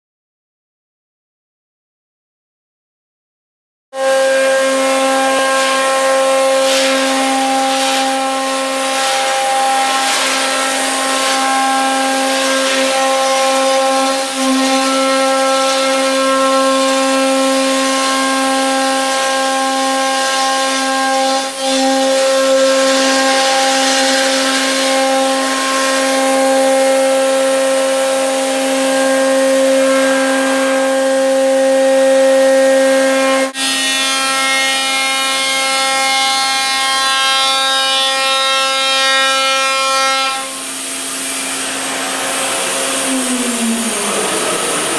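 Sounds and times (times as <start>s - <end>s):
router spindle whine: 4.0s - 36.8s, 40.4s - 44.9s.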